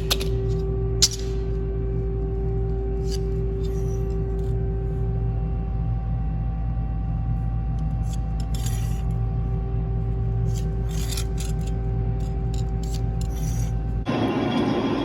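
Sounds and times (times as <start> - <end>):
metal being scraped: 8.0 - 9.2, 10.4 - 14.0.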